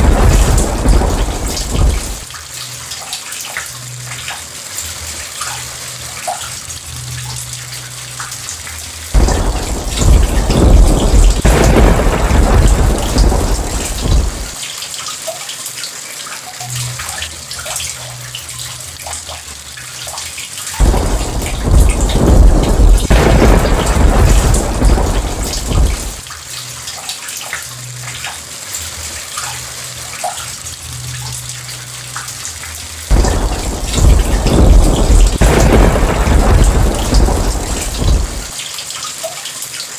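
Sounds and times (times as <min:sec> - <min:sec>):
thunder rumbling: 0:00.0 - 0:02.3, 0:09.2 - 0:14.6, 0:20.8 - 0:26.3, 0:33.1 - 0:38.6
steady rain falling: 0:00.0 - 0:39.9.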